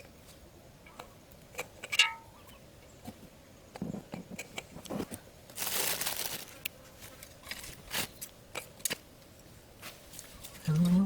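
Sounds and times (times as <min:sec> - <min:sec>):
crinkly rustling: 0:04.8 - 0:08.3.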